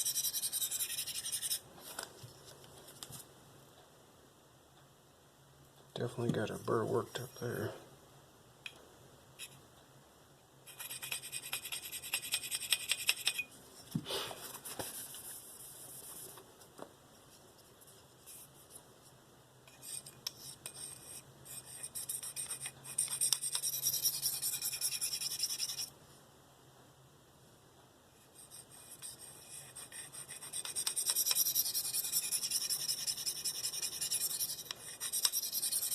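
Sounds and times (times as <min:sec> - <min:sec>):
knife scraping on sharpening stone: 0:00.0 - 0:01.6, 0:10.7 - 0:13.5, 0:19.7 - 0:25.9, 0:28.8 - 0:35.9.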